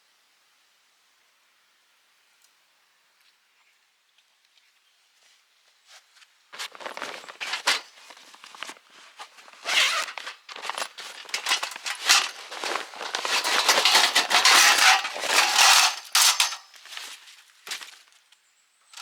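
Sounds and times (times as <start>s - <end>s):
rustling and crinkling: 5.8s - 18.4s.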